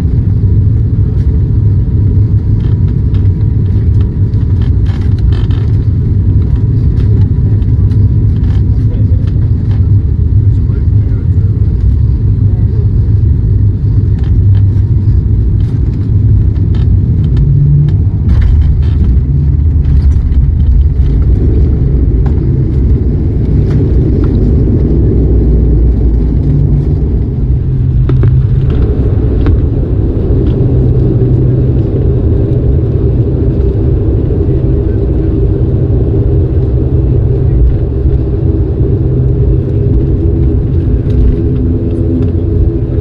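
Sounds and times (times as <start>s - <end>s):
deep engine rumble in cabin: 0.0s - 43.0s
faint rattles and clicks: 2.5s - 12.4s, 13.3s - 29.7s.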